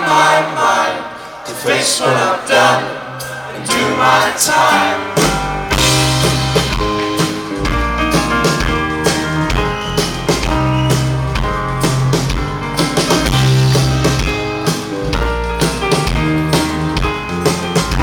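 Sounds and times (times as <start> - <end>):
guitars: 3.2 - 18.0
bass line: 4.9 - 18.0
driving drum beat: 5.1 - 18.0.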